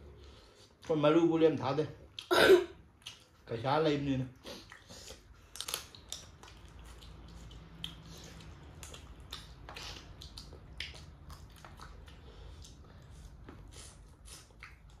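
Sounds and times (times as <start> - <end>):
person chewing crunchy food: 4.5 - 15.0.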